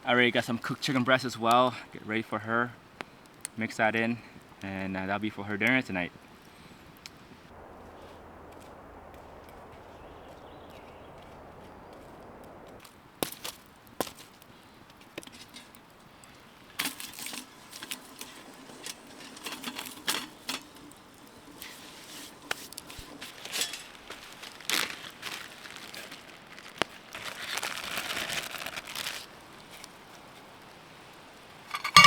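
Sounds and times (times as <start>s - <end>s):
plastic packaging crinkling and tearing: 23.2s - 29.9s.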